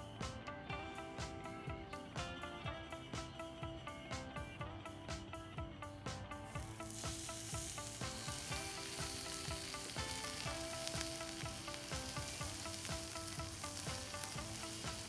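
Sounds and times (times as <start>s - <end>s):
plucked background music: 0.0s - 15.0s
food sizzling in a pan: 6.5s - 15.0s.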